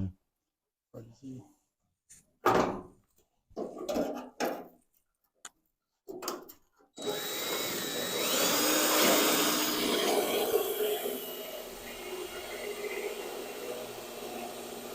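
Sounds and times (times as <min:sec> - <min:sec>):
power drill cutting sheet metal: 0:07.0 - 0:14.9.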